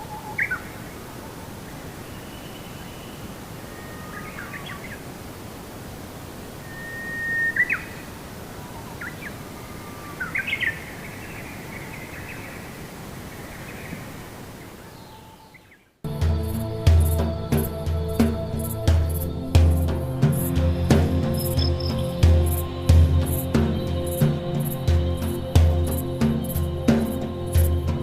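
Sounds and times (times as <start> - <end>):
outdoor background hiss: 0.0 - 28.0
wild bird chirps and whistles: 6.6 - 10.9.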